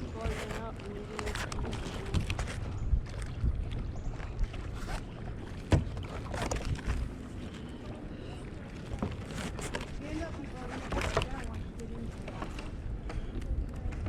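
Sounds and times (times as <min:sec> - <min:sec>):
paddle splashes: 0:00.0 - 0:14.0
knocks against boat: 0:05.6 - 0:07.0.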